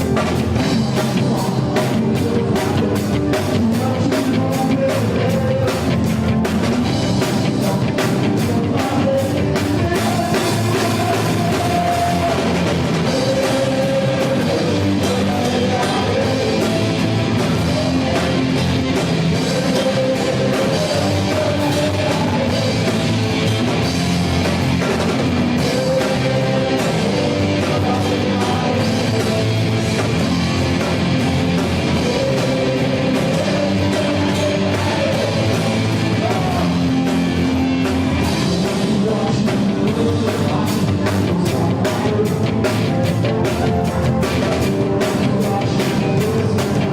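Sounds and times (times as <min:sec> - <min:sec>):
person singing: 0:00.0 - 0:23.8, 0:24.8 - 0:37.5, 0:38.1 - 0:46.9
drum kit: 0:00.0 - 0:46.9
electric guitar: 0:00.0 - 0:46.9
rock band playing loudly: 0:00.0 - 0:46.9.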